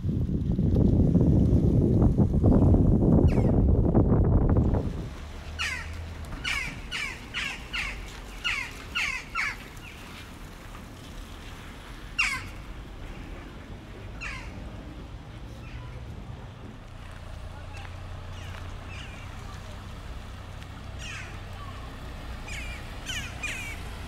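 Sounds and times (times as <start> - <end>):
low rumbling noise: 0.0 - 8.5, 10.2 - 24.0
bird calling short falling calls: 5.6 - 10.0, 12.2 - 12.6.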